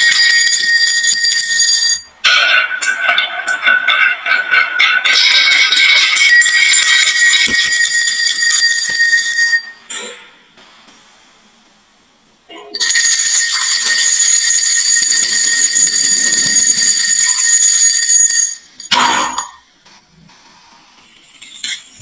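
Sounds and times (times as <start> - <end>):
high ringing tones: 0.0 - 9.9, 12.8 - 19.6.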